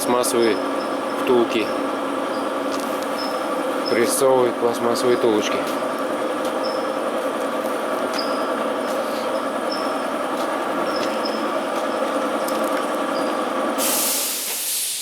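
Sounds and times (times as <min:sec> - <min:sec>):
machinery humming: 0:00.0 - 0:14.8
faint ticks and squeaks: 0:06.6 - 0:06.9, 0:08.2 - 0:10.0, 0:10.9 - 0:11.4.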